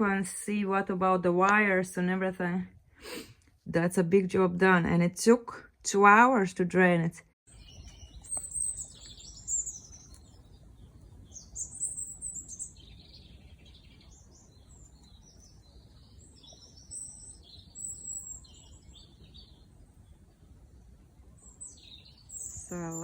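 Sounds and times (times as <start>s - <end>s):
songbirds chirping and trilling: 7.5s - 23.0s.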